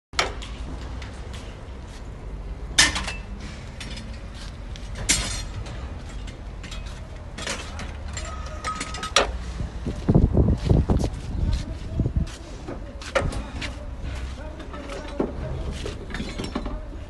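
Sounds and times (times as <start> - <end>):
steady low rumble: 9.3 - 14.3.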